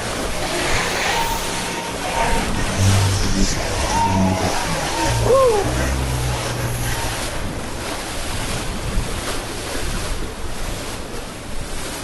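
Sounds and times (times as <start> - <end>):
floodwater rushing: 0.0 - 8.9.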